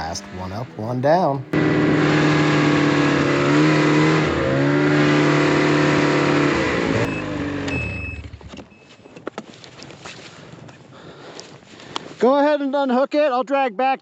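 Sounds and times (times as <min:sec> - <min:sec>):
snowmobile engine running hard: 0:00.0 - 0:08.3.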